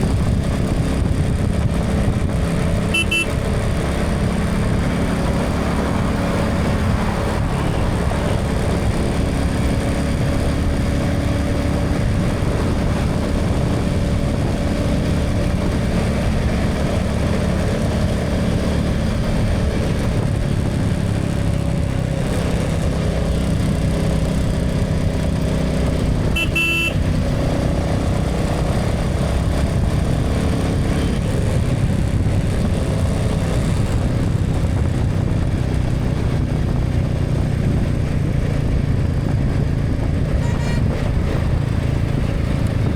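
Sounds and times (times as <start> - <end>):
motorcycle engine cruising: 0.0 - 42.9
road and traffic noise: 0.0 - 42.9
horn toot: 2.9 - 3.4, 26.3 - 27.1, 40.3 - 41.2.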